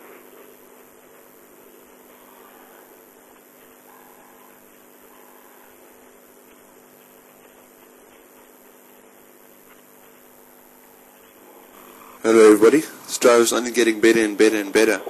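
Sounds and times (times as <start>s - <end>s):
faint hiss and low hum: 0.0s - 15.0s.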